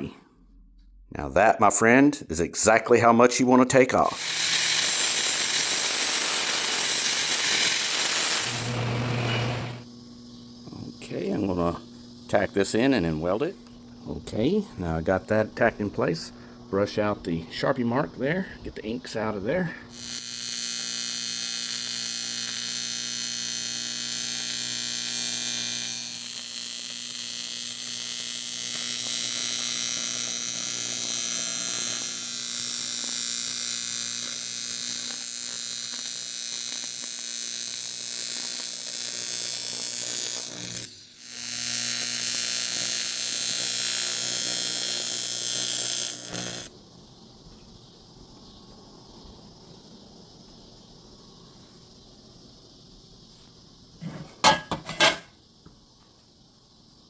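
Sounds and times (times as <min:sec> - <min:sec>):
welding arc buzzing: 0:04.0 - 0:09.9, 0:19.9 - 0:46.8.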